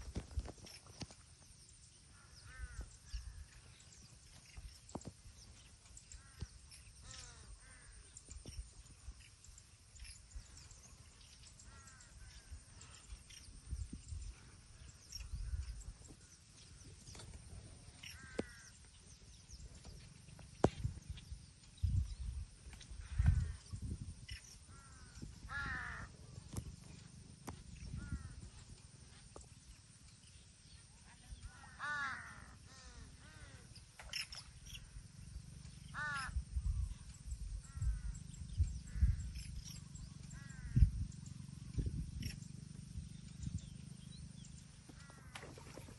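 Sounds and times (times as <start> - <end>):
birds chirping: 0.0 - 45.9
harsh crow-like call: 2.2 - 3.4, 6.2 - 8.0, 18.0 - 18.8, 24.7 - 26.2, 31.7 - 34.2, 35.9 - 36.4, 40.3 - 40.9, 45.0 - 45.7
low rumbling thumps: 27.4 - 28.5.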